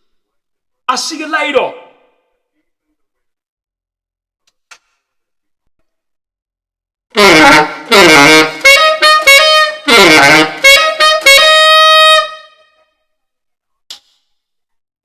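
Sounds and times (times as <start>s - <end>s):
tenor saxophone jazzy phrase: 7.2s - 12.5s.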